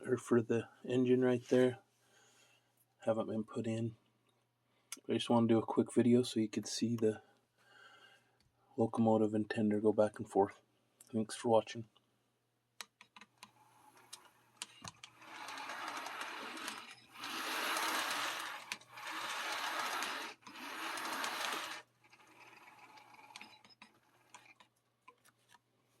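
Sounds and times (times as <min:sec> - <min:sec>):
wheels clicking on rails: 0:15.0 - 0:24.6
small electric motor whirring: 0:15.1 - 0:24.6.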